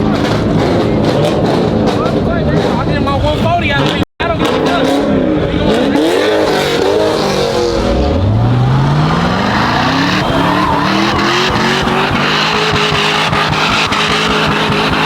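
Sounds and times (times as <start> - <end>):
car engine revving: 0.0 - 15.0
tyres squealing on pavement: 8.3 - 15.0.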